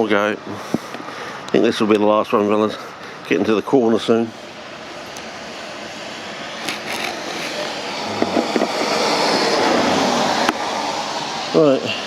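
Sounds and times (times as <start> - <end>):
passing vehicle rushing: 4.3 - 12.0.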